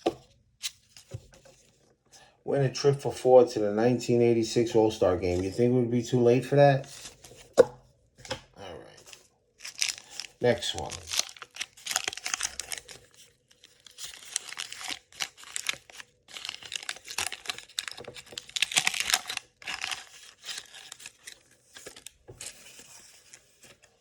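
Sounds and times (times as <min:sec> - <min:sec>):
wax paper wrapper tearing and crinkling: 0:09.1 - 0:23.8.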